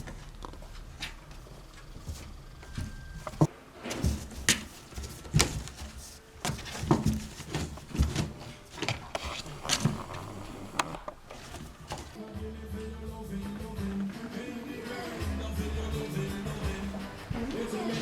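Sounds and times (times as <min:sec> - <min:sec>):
kittens scuffling and tapping: 0:00.0 - 0:12.2.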